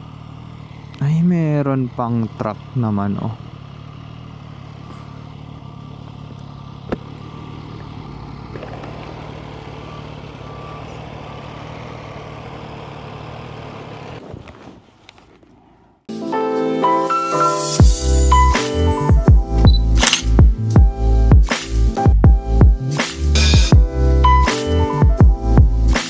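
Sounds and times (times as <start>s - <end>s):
motorcycle engine idling: 0.0s - 16.1s
sharp click: 19.6s - 20.4s.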